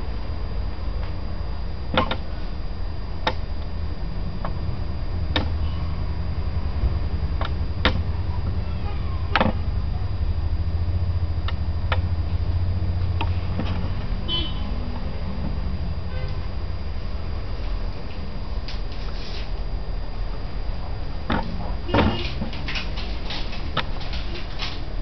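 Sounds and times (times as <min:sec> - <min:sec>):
diesel engine idling: 0:00.0 - 0:18.8
sharp clicks: 0:03.2 - 0:03.4, 0:05.3 - 0:05.6, 0:11.4 - 0:12.1.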